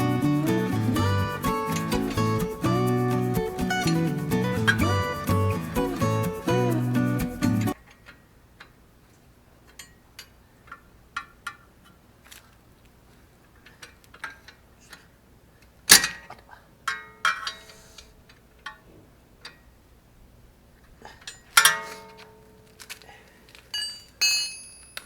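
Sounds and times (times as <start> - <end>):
metal tools clinking: 21.1 - 25.0.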